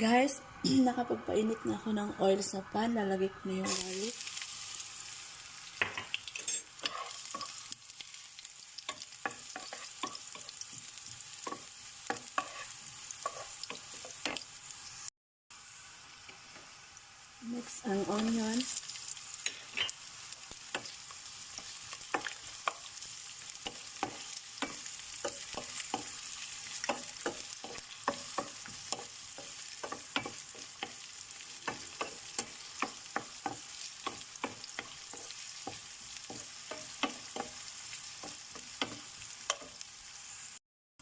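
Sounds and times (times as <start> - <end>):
garlic and onion sizzling in oil: 0.0 - 40.6
utensil clicking and scraping pan: 6.3 - 7.6, 11.5 - 14.4, 23.6 - 31.0.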